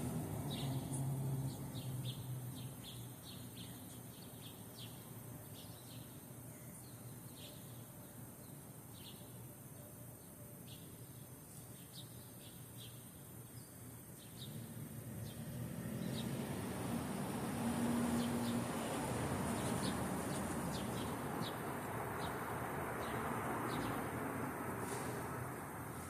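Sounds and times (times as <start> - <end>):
small birds chirping: 0.0 - 25.2.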